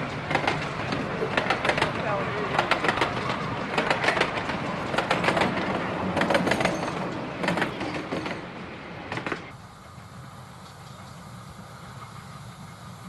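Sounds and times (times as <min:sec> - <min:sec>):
train wheels clicking over rail joints: 0:00.0 - 0:09.6
miniature train rumbling: 0:00.0 - 0:13.0.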